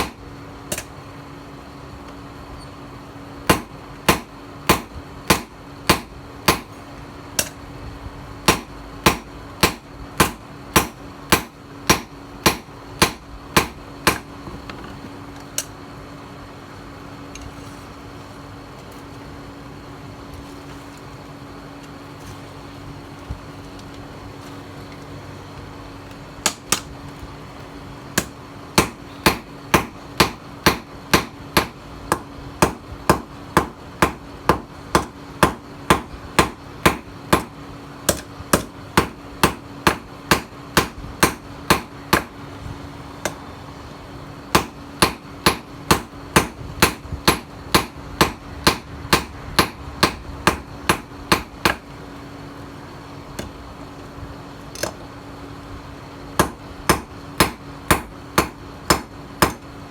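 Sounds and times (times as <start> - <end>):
hammer striking steel on anvil: 0.0 - 0.9, 3.5 - 6.8, 8.5 - 14.3, 28.2 - 37.5, 44.5 - 51.8, 56.4 - 59.6.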